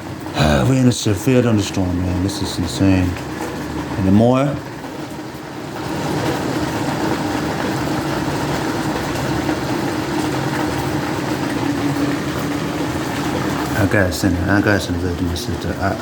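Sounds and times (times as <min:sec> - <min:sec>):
heavy rain and hail: 0:00.0 - 0:16.0.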